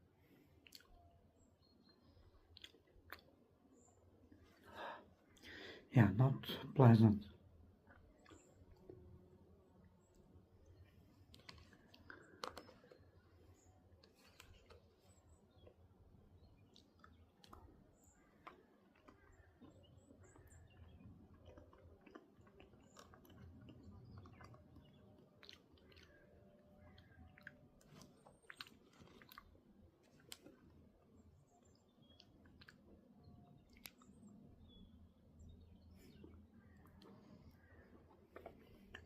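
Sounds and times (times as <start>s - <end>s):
faint clicks and crackles: 7.8s - 39.0s.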